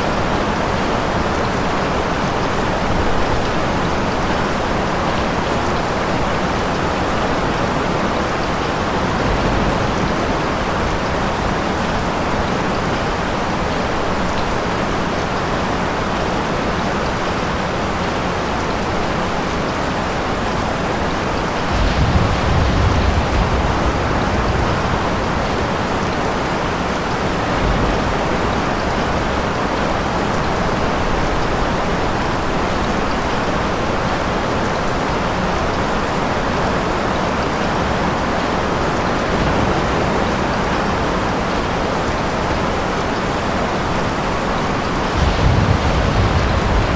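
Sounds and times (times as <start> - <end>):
rain falling: 0.0 - 46.9
thunder rumbling: 6.6 - 12.8, 21.4 - 32.6, 44.2 - 46.9.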